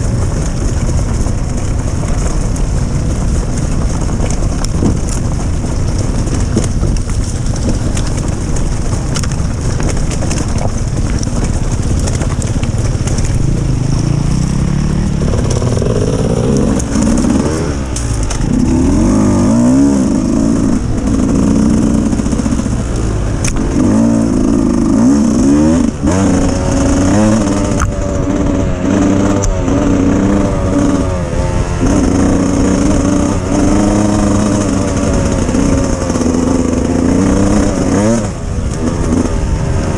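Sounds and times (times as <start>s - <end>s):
dirt bike engine revving: 0.0s - 39.9s
loud low rumble: 0.0s - 39.9s.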